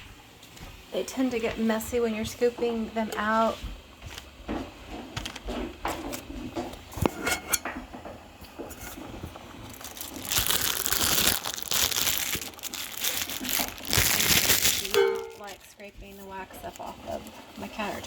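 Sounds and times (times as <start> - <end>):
plastic bag crinkling: 5.2 - 6.2, 9.5 - 15.9.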